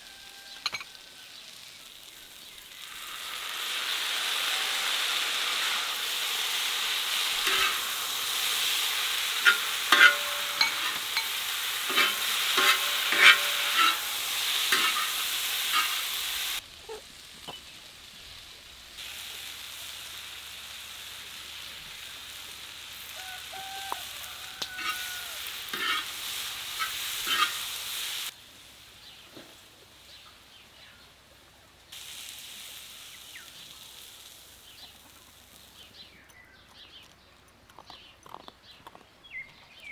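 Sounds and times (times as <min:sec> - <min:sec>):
food sizzling in a pan: 0:00.0 - 0:36.1
utensil scraping a pan: 0:04.5 - 0:16.6, 0:23.9 - 0:28.2.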